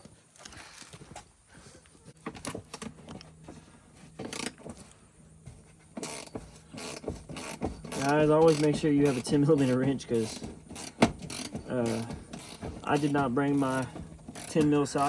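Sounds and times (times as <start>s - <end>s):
metal tools clinking: 5.7s - 15.0s.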